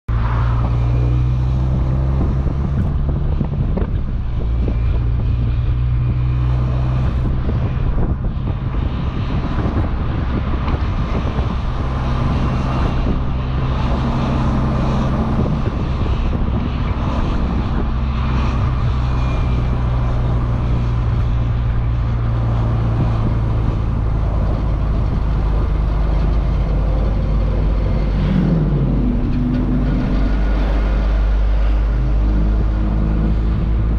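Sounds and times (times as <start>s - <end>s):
wind noise: 0.1s - 33.9s.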